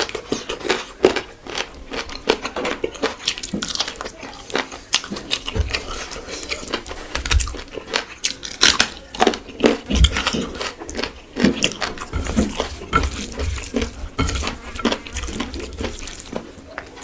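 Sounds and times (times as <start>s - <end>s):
chewing and wet mouth sounds: 0.0s - 17.0s
slurping: 9.6s - 17.0s.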